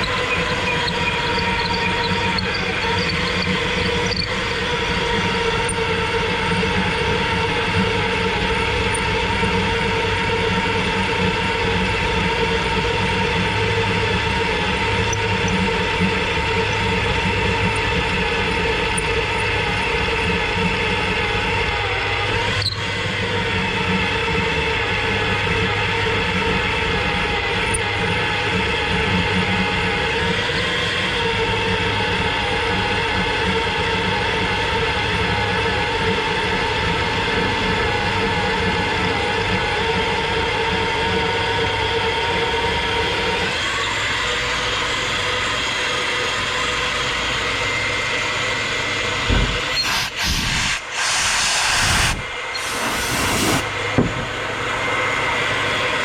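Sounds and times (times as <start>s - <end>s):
drill cutting metal whine: 0.0s - 12.8s, 49.6s - 53.7s.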